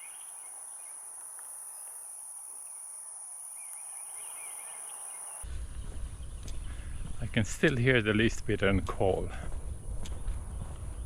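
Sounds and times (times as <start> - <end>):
bird chirps: 0.0 - 1.0, 3.5 - 7.9.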